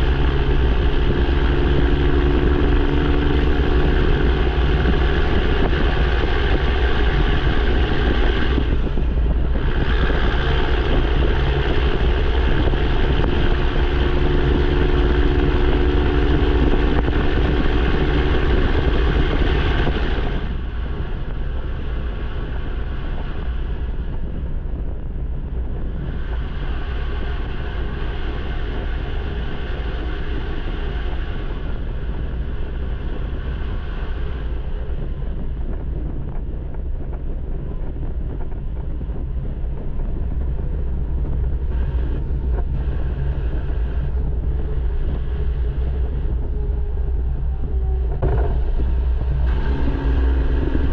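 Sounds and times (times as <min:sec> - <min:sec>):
loud diesel truck engine: 0:00.0 - 0:21.0, 0:41.0 - 0:50.9.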